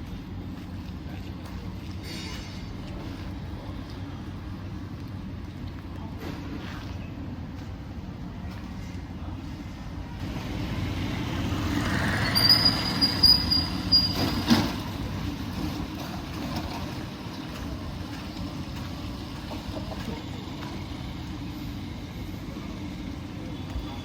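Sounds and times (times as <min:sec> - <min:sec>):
traffic on wet road: 0:00.0 - 0:24.0
brake squeal: 0:02.0 - 0:02.8, 0:11.4 - 0:15.1.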